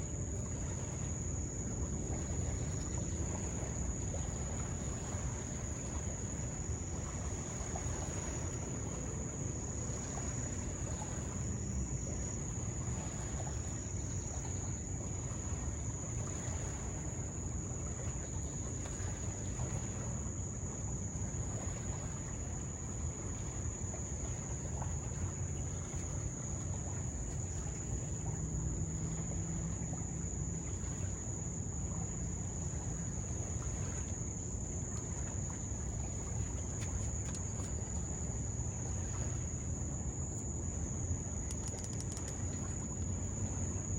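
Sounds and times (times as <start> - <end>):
continuous low rumble: 0.0 - 43.9
insects high-pitched singing: 41.0 - 43.2.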